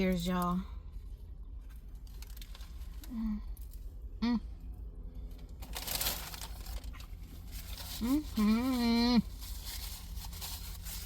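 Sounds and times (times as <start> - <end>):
crinkling: 1.0 - 3.8, 5.3 - 11.0
person humming: 4.2 - 4.5.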